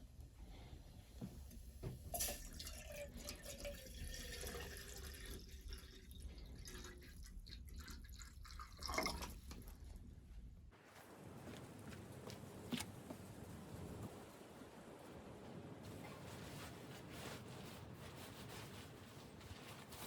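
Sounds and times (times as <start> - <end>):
water gurgling pour: 2.2 - 9.8
water dripping and trickling: 2.2 - 9.9.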